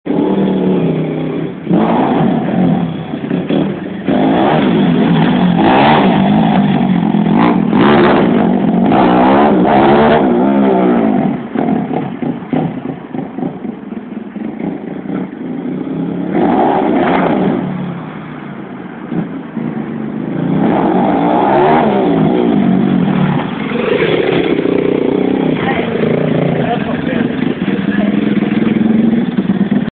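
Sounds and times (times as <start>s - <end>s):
small motorbike engine revving: 0.1s - 13.7s, 14.4s - 18.1s.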